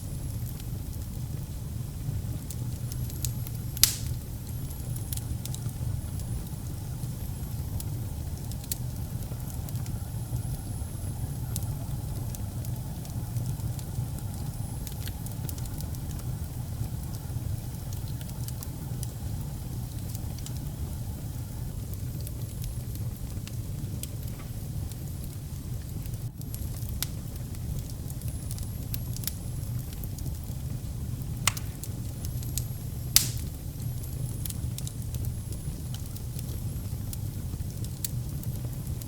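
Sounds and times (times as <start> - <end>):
wood fire crackling: 0.0 - 39.0
sharp loud pop of fire: 3.8 - 4.2, 31.5 - 31.8, 33.2 - 33.5.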